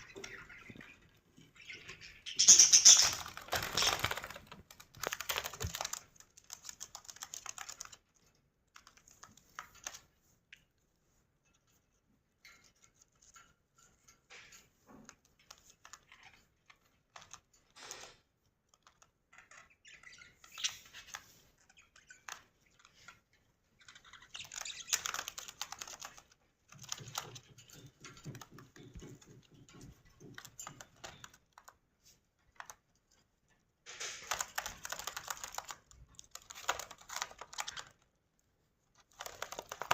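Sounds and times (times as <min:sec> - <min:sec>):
budgerigars chattering: 0:01.8 - 0:04.0.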